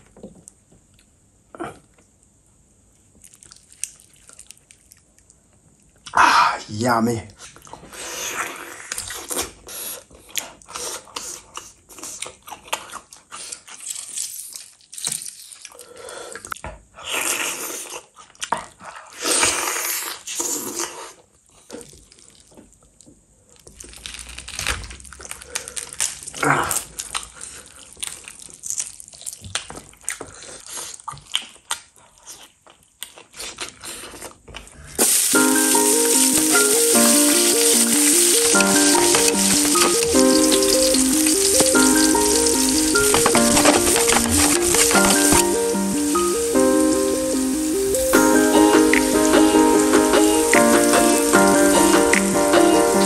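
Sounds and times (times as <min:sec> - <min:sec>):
biting and chewing meat: 0:07.4 - 0:35.2, 0:38.4 - 0:45.6.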